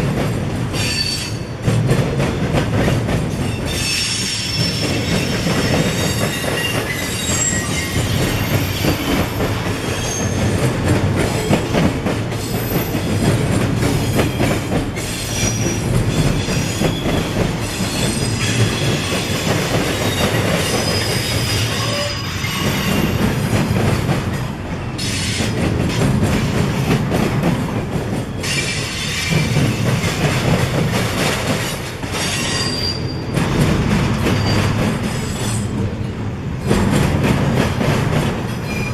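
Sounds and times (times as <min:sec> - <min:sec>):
train wheels rumbling and clattering: 0:00.0 - 0:38.9
high-pitched wheel squeals: 0:03.7 - 0:09.0, 0:32.2 - 0:33.4.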